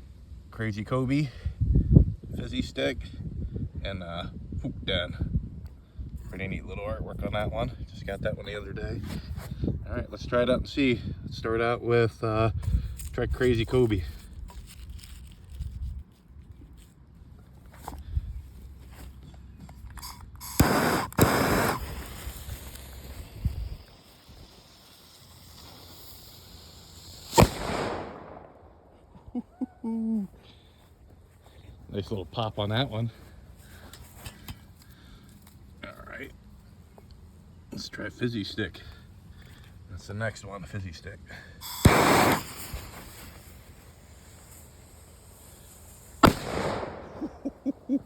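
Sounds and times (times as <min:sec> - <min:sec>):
crackling: 0:19.9 - 0:28.6, 0:41.6 - 0:48.0
firecracker pop: 0:20.0 - 0:24.4, 0:27.2 - 0:28.4, 0:41.6 - 0:43.4, 0:46.2 - 0:47.3
fuse hissing: 0:20.0 - 0:28.4, 0:41.5 - 0:47.1.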